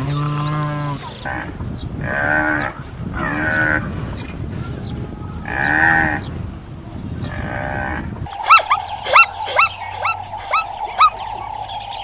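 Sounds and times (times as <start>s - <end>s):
animal high-pitched calls: 8.3s - 12.0s.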